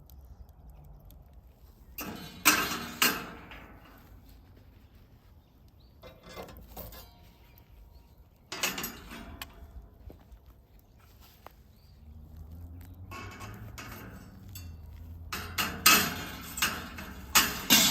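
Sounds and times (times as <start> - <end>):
sharp knocks and clatters: 2.0 - 4.3, 8.5 - 10.5, 12.5 - 17.9.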